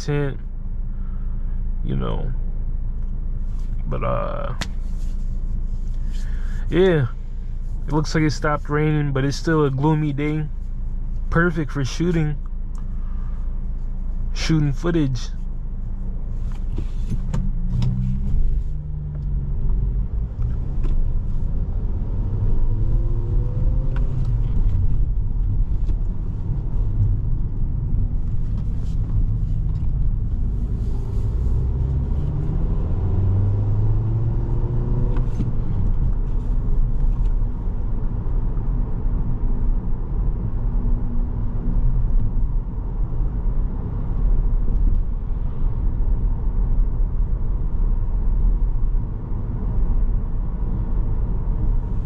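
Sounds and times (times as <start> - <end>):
road noise inside car: 0.0 - 52.0
car engine accelerating: 15.9 - 52.0.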